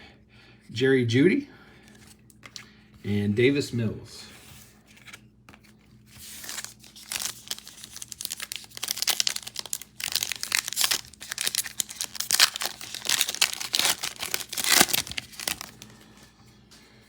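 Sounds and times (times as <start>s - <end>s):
wrapper tearing and crinkling: 6.2s - 16.0s.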